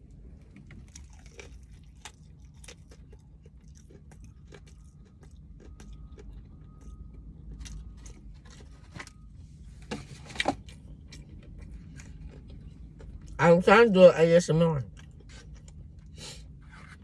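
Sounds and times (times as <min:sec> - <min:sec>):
steady low rumble: 0:00.0 - 0:17.0
person crunching fried chicken: 0:00.6 - 0:08.8, 0:11.0 - 0:13.4.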